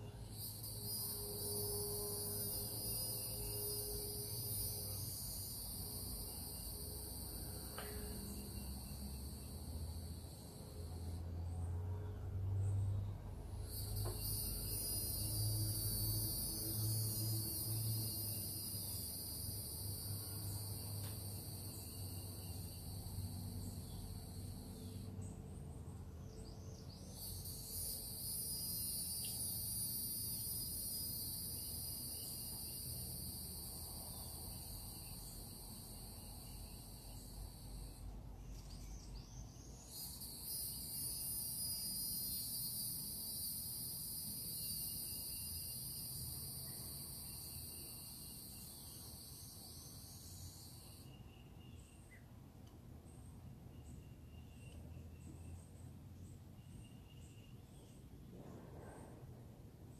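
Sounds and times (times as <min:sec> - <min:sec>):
insect trilling: 0:00.0 - 0:11.2, 0:13.6 - 0:25.1, 0:26.8 - 0:51.9.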